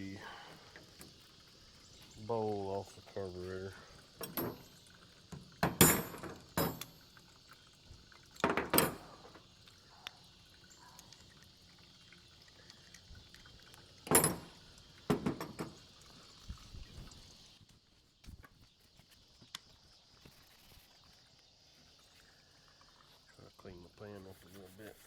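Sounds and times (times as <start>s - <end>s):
tools clicking and clanking: 4.2s - 4.8s, 5.6s - 7.0s, 8.4s - 9.4s, 14.1s - 15.8s.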